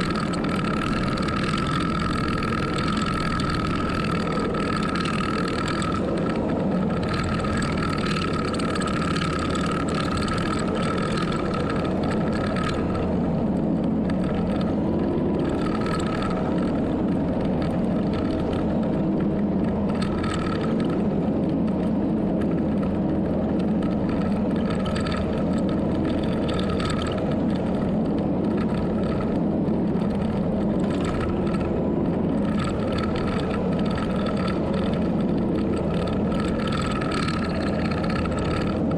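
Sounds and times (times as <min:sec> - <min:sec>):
heavy machine engine running: 0:00.0 - 0:38.9
high whine: 0:00.0 - 0:38.9.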